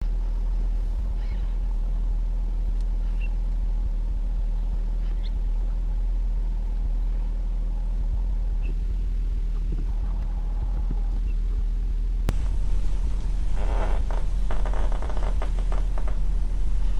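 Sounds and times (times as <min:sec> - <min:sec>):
vehicle engine idling: 0:00.0 - 0:16.9
faint bird chirps: 0:01.1 - 0:01.9, 0:03.0 - 0:03.4, 0:04.8 - 0:05.8, 0:08.6 - 0:08.8.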